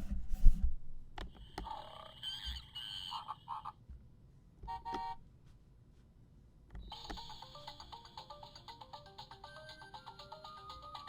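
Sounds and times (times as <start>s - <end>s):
toy animal sound effects: 1.4s - 3.8s, 6.8s - 11.0s.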